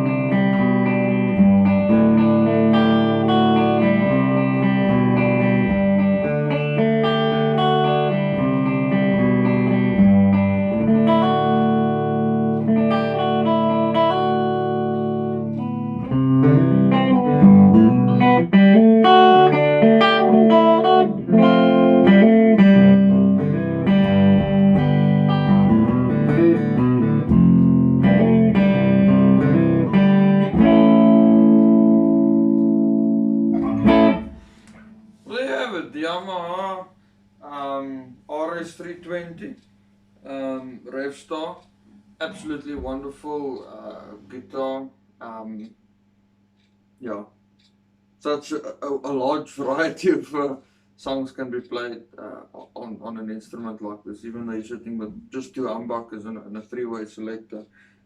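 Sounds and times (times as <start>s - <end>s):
electric guitar chords and notes: 0.0s - 35.3s.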